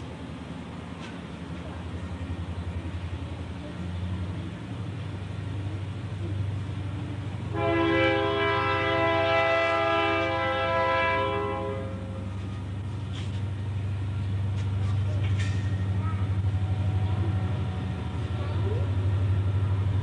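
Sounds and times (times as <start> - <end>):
loud horn tone: 7.5 - 12.0.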